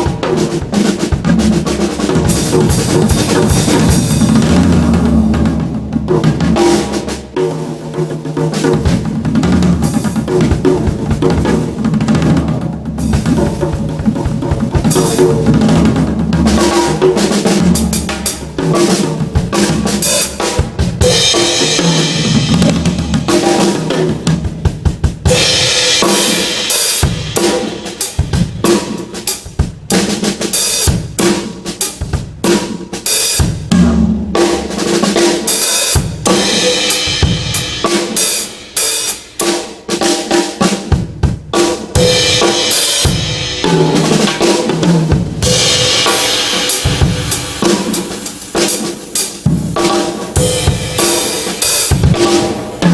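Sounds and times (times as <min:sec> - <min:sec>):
drum kit playing: 0:00.0 - 0:52.9.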